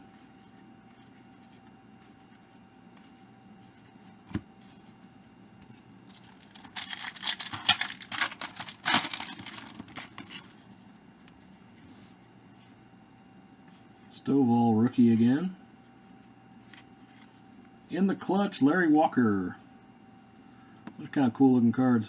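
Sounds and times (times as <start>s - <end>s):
card pack wrapper tearing: 6.1s - 10.5s.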